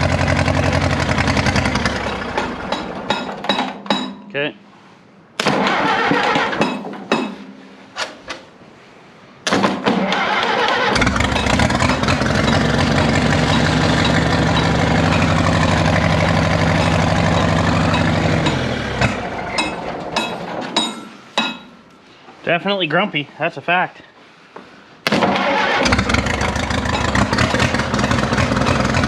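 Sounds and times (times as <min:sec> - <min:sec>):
tractor engine cranking and running rough: 0:00.0 - 0:03.9, 0:05.5 - 0:07.0, 0:09.6 - 0:21.0, 0:25.1 - 0:29.0.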